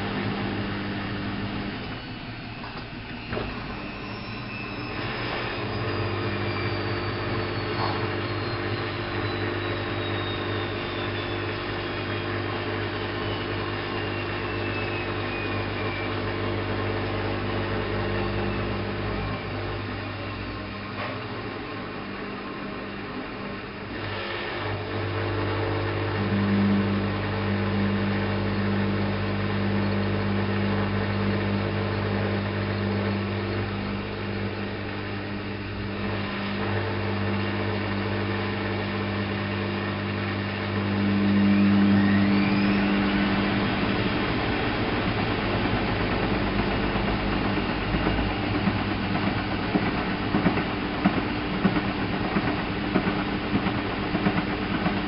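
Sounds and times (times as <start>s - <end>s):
washing machine drum whine: 0.0s - 55.0s
washing machine humming: 0.0s - 55.0s
washing machine rattling: 42.6s - 55.0s.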